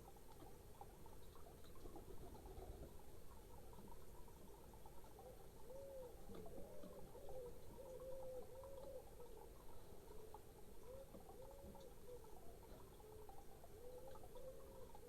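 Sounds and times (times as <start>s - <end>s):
pigeon cooing: 5.1s - 15.0s.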